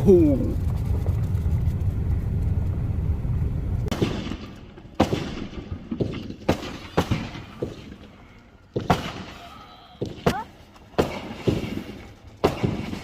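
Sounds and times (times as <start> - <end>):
low rumble: 0.0 - 6.0
fireworks bangs: 3.8 - 13.0.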